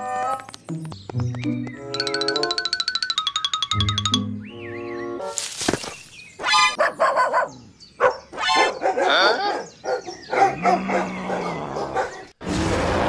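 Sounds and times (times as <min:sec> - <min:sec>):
small dog barking: 0:06.8 - 0:12.2.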